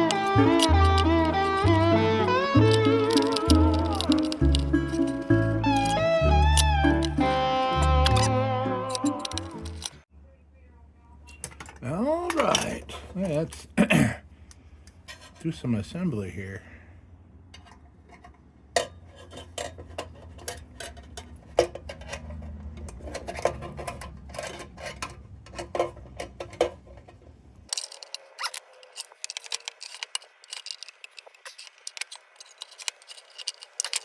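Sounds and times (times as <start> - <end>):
sheet-metal parts clinking: 0.0 - 10.0, 27.7 - 34.0.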